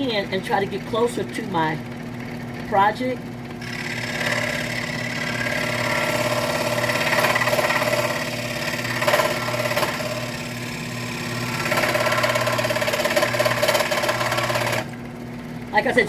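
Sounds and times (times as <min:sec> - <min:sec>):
scroll saw cutting wood: 0:03.6 - 0:15.0.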